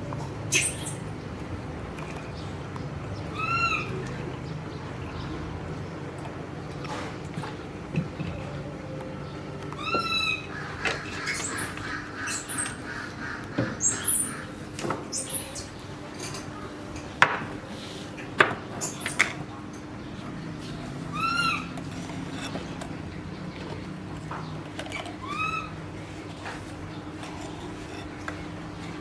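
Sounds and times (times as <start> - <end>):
high squeaky animal calls: 0.4 - 1.1, 3.3 - 4.0, 9.8 - 15.7, 21.1 - 21.8, 25.2 - 25.8.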